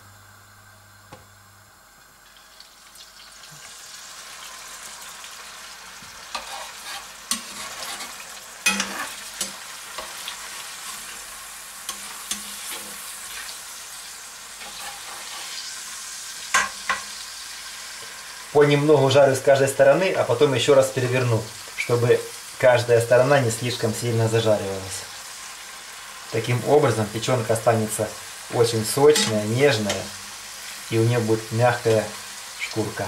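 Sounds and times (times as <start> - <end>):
meat sizzling in a pan: 2.0 - 33.0
metal fork striking pan: 8.6 - 10.1, 29.1 - 30.0.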